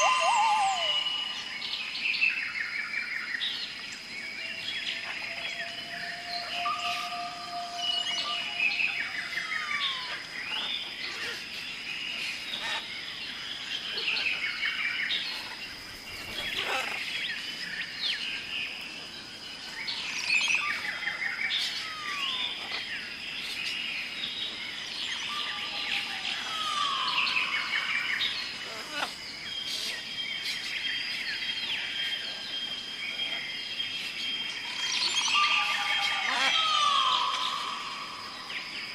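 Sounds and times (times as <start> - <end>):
flock of birds chattering: 0.0 - 2.0, 4.6 - 18.0, 24.7 - 30.8, 31.4 - 38.9
high-pitched insect tone: 0.0 - 2.7, 3.9 - 12.9, 25.0 - 38.9.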